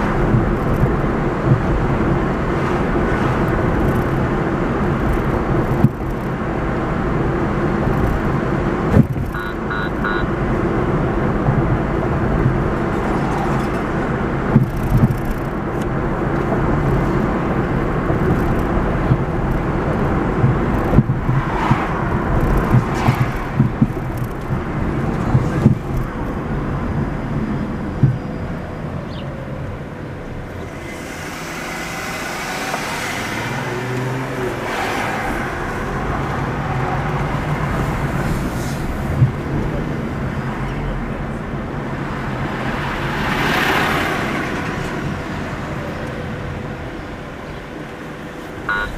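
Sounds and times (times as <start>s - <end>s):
car engine and road noise: 0.0s - 48.9s
short high tones: 48.7s - 48.9s.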